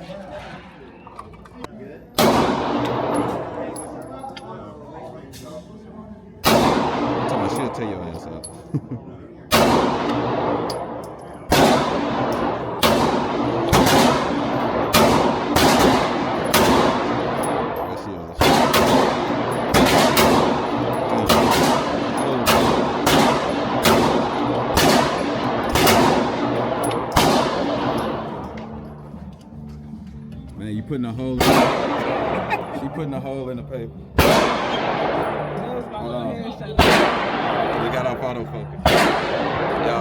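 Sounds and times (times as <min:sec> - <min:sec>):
pistol shots echoing: 0:02.2 - 0:04.5, 0:06.4 - 0:08.4, 0:09.5 - 0:29.0, 0:31.4 - 0:33.0, 0:34.2 - 0:40.0.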